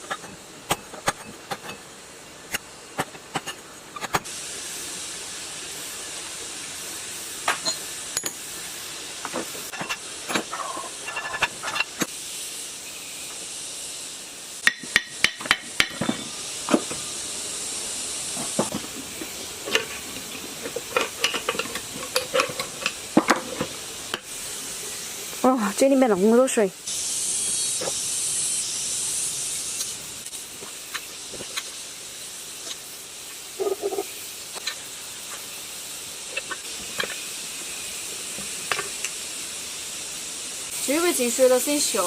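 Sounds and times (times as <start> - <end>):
steady hiss: 0.0 - 42.0
metal tools clinking on engine parts: 7.6 - 8.5.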